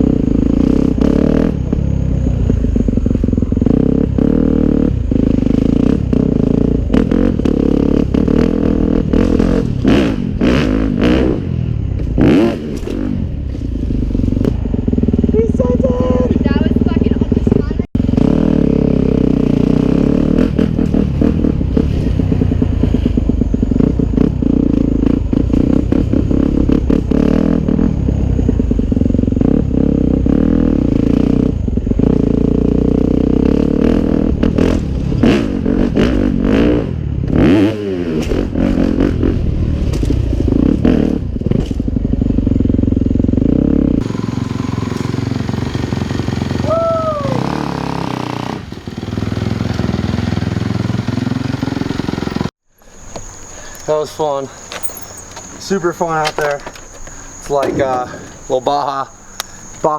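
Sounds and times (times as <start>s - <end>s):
dirt bike engine revving: 0.0s - 52.6s
clattering knocks: 54.7s - 58.2s.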